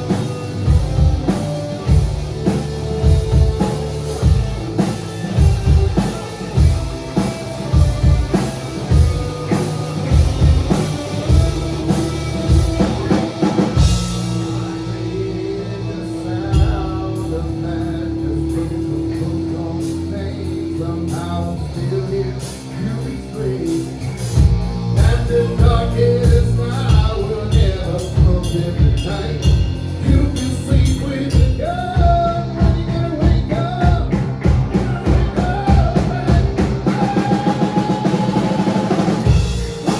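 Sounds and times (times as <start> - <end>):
drum kit: 0.0 - 17.9, 18.5 - 39.9
rock band playing live: 0.0 - 39.9
person singing: 11.0 - 24.0, 25.0 - 39.9.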